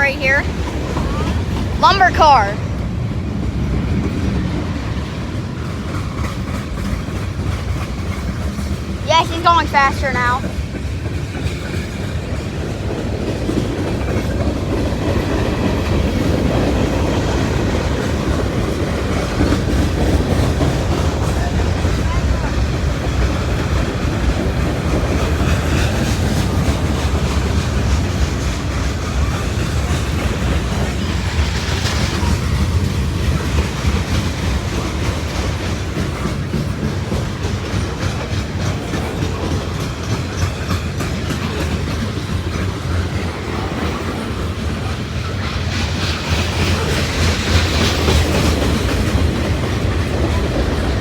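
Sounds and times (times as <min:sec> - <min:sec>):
wheels clacking over rail joints: 0:00.0 - 0:09.6, 0:10.4 - 0:51.0
freight train rumbling: 0:00.0 - 0:51.0.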